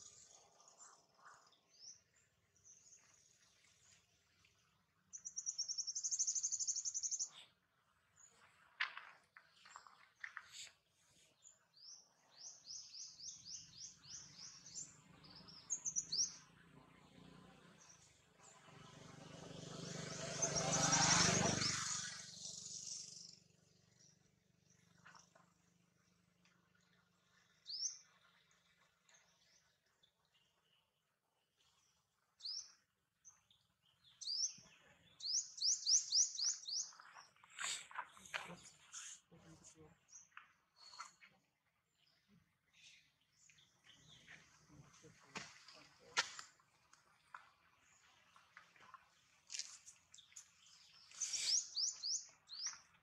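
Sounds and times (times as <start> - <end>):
small bird chirping: 5.1 - 7.5, 11.8 - 16.6, 20.3 - 24.1, 33.4 - 39.1, 49.5 - 53.0
bird singing rising whistled notes: 50.9 - 52.8.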